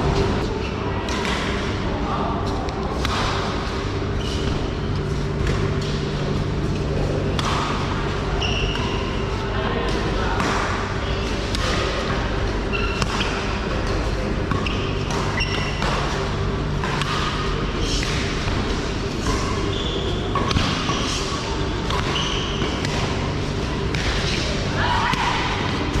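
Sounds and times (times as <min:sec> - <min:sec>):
steady low hum: 0:00.0 - 0:26.0
shoe squeaks: 0:04.2 - 0:04.5, 0:08.3 - 0:09.2, 0:12.7 - 0:13.6, 0:14.5 - 0:16.2, 0:19.2 - 0:22.8.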